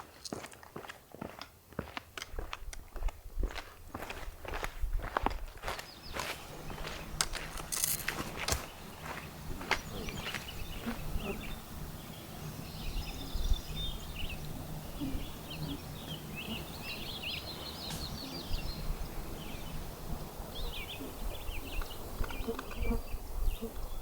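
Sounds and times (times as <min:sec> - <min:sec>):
footstep scuffs on trail: 0:00.0 - 0:11.0, 0:17.6 - 0:18.2
songbirds chirping and trilling: 0:04.1 - 0:24.0.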